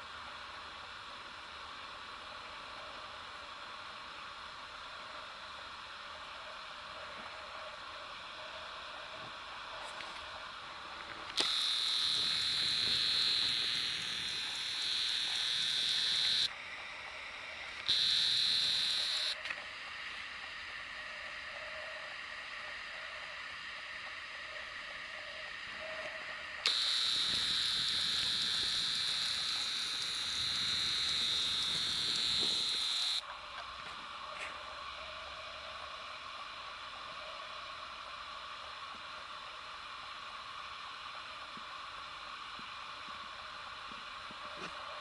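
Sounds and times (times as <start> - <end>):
steady hiss: 0.0 - 45.0
camera zoom lens whining: 11.3 - 16.6, 17.8 - 19.6, 26.6 - 33.2.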